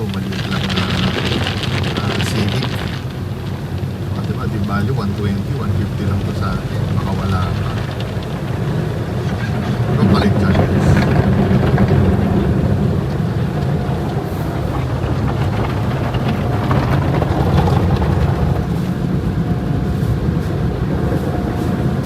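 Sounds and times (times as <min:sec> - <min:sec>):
low vehicle rumble: 0:00.0 - 0:22.0
road or wind noise hiss: 0:18.3 - 0:22.0.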